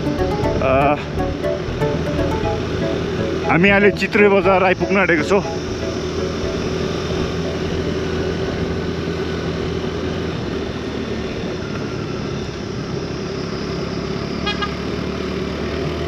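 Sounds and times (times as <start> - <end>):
wind and road noise: 6.6 - 16.0
vehicle horn toot: 14.4 - 14.8.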